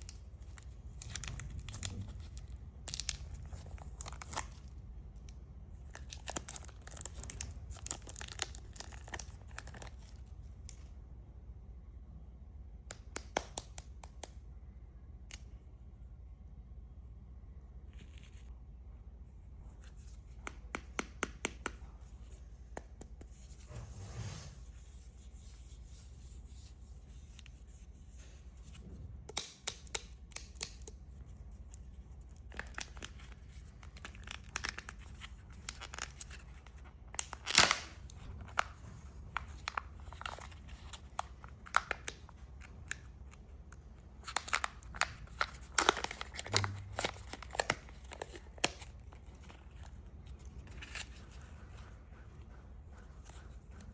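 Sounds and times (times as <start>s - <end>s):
candy wrappers crinkling: 0.0s - 10.8s, 29.3s - 51.6s
faint low hum: 0.0s - 53.9s.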